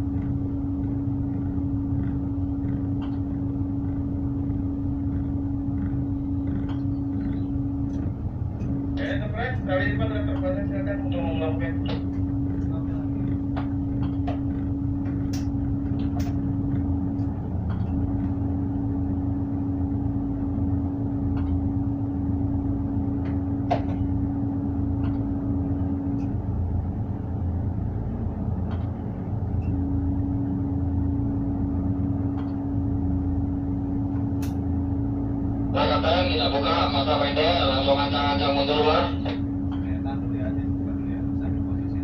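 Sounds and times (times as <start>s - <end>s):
diesel engine drone: 0.0s - 42.0s
steady whine: 0.0s - 42.0s.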